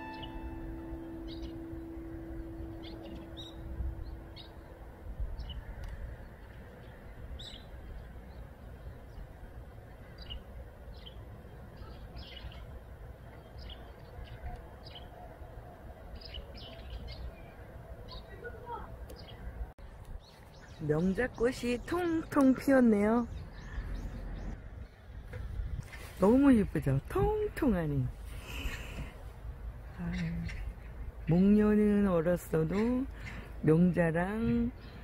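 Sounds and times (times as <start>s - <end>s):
held note of background music: 0.0s - 4.9s
steady low rumble: 0.0s - 11.7s
small birds chirping: 0.0s - 29.2s, 29.8s - 35.0s.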